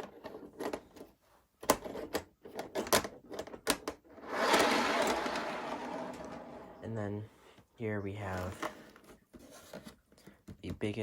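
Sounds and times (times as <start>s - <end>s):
rustling scrape of packaging: 4.2s - 6.8s.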